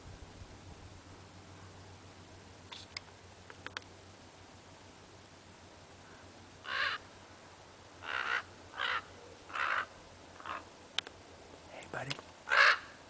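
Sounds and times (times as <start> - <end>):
crow cawing: 6.0 - 7.1, 8.0 - 10.7, 12.4 - 13.0.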